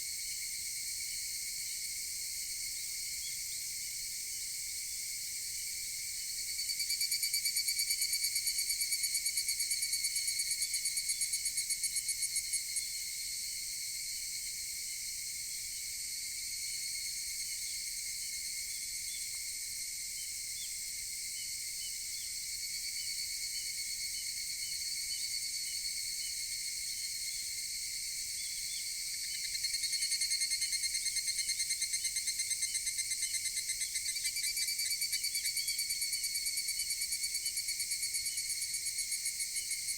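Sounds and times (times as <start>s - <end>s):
distant cicada chorus: 0.0s - 39.9s
cicada rapid pulsing call: 15.7s - 39.9s.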